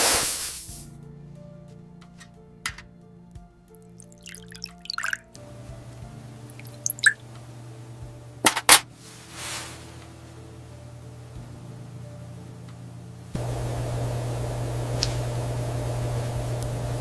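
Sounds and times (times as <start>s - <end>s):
short hiss: 0.0s - 0.9s, 9.1s - 10.0s
soft background music: 0.2s - 13.4s
light scrapes: 9.0s - 10.1s.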